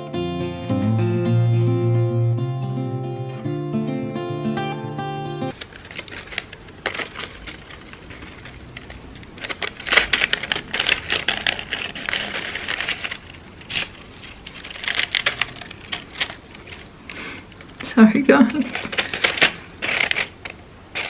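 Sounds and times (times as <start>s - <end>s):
crepe paper crinkling: 5.5s - 21.0s.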